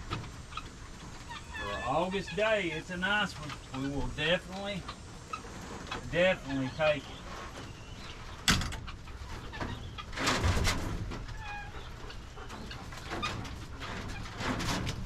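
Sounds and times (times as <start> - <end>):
poultry clucking and chirping: 0.0 - 15.0
rustling: 0.0 - 15.0.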